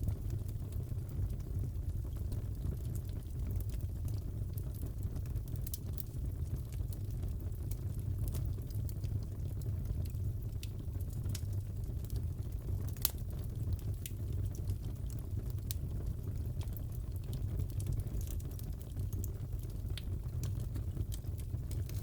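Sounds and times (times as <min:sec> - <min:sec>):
fireplace crackling: 0:09.3 - 0:15.8, 0:16.4 - 0:22.0.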